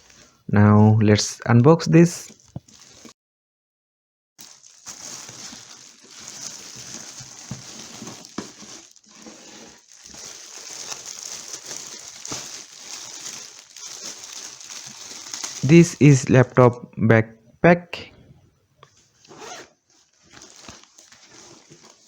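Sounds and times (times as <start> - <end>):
packaging rustling and crinkling: 2.3 - 3.1, 4.4 - 16.2, 18.8 - 22.0.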